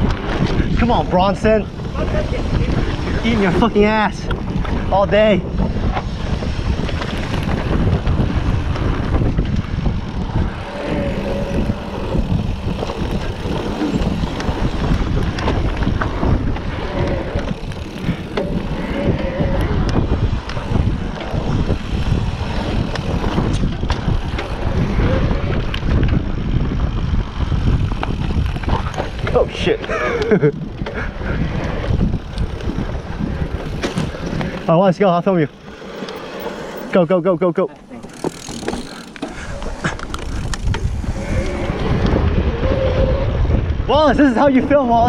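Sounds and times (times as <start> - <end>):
bike knocking and rattling: 0.0 - 42.8
wind rushing over microphone: 0.0 - 45.0.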